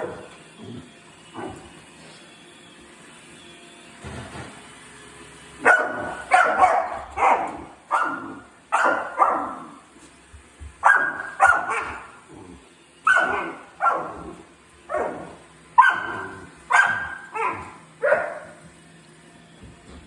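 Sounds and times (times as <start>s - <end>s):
dog barking: 5.6s - 9.8s, 10.8s - 12.2s, 13.0s - 18.6s.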